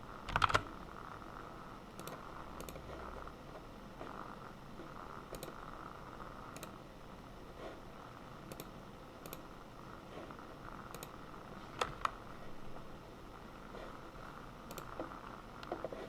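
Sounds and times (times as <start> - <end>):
keyboard clicks: 0.3 - 0.7, 2.0 - 3.0, 5.3 - 5.6, 6.5 - 6.8, 8.5 - 9.5, 10.9 - 11.2, 14.7 - 16.0
computer mouse clicks: 2.0 - 3.2, 5.3 - 5.6, 6.5 - 6.8, 8.4 - 9.5, 10.9 - 12.2, 14.7 - 16.0.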